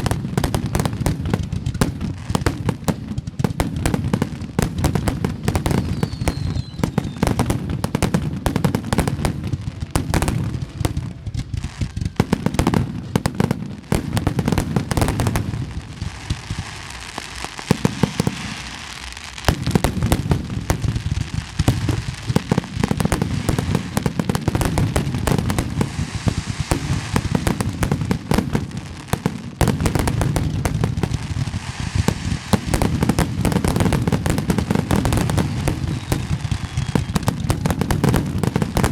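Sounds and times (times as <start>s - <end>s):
fireworks booming: 0.0s - 38.9s
fireworks crackling: 0.0s - 38.9s.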